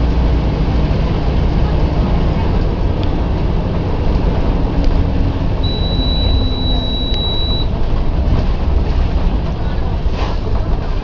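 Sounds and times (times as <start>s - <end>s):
bus diesel engine rumbling: 0.0s - 11.0s
steady high beep: 5.6s - 7.7s.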